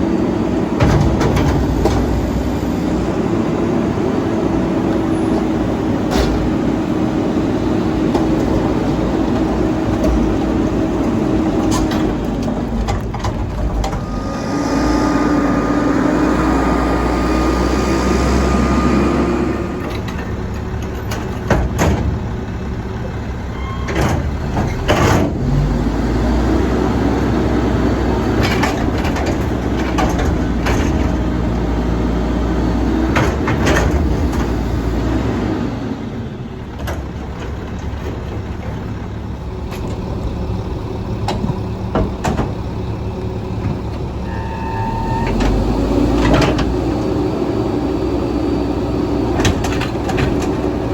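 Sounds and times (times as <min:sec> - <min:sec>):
garbage truck diesel engine: 0:00.0 - 0:50.9
metal clanks and bangs: 0:00.8 - 0:02.6.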